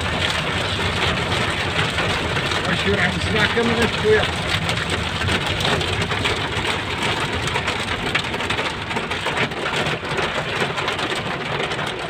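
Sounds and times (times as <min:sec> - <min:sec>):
engine and road noise: 0:00.0 - 0:12.0
rain on a vehicle: 0:00.0 - 0:12.0.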